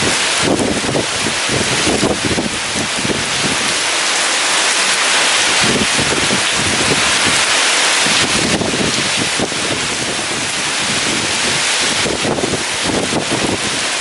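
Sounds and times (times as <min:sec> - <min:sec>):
heavy rain pouring: 0:00.0 - 0:14.0
wind gusting: 0:00.0 - 0:14.0.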